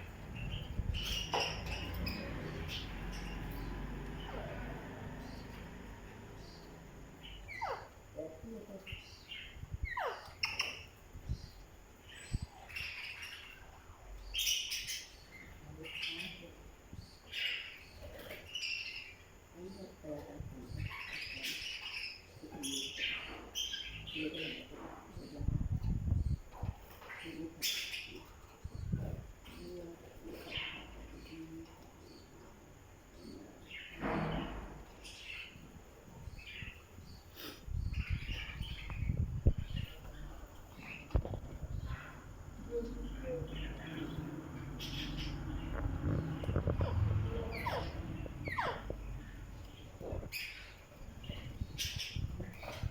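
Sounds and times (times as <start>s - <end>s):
low rumbling thumps: 0.0s - 7.0s, 37.7s - 52.9s
parrot chirping: 7.3s - 8.0s, 9.4s - 11.0s, 43.7s - 52.9s
parrot noisy call: 44.8s - 49.4s.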